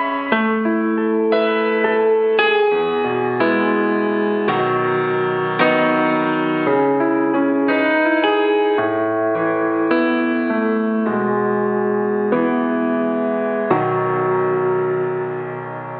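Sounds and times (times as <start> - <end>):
slow piano chords: 0.0 - 15.9.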